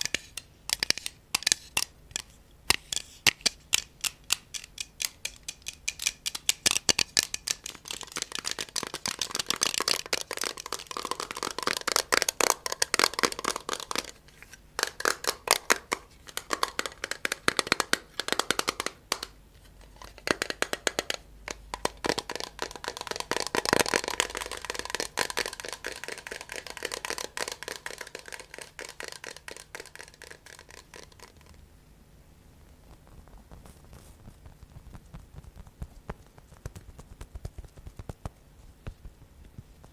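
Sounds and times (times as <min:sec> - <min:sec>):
tapping on a hard surface: 0:00.0 - 0:14.2, 0:14.8 - 0:19.3, 0:20.0 - 0:31.6.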